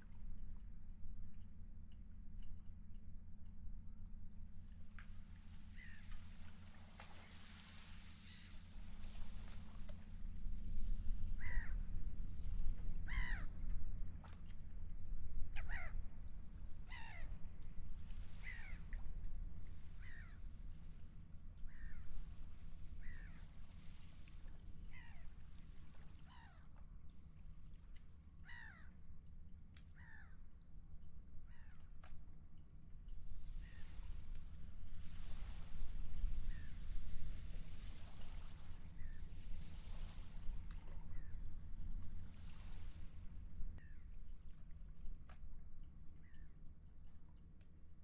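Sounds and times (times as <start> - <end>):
seagull calling: 11.4 - 11.8, 13.1 - 13.5.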